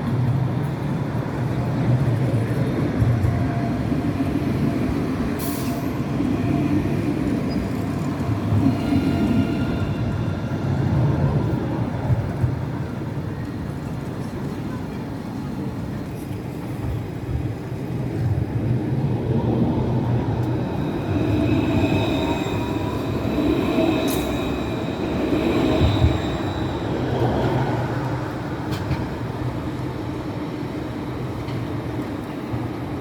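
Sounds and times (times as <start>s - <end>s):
tram rumbling on rails: 0.0s - 33.0s
high wheel squeal: 20.6s - 27.7s.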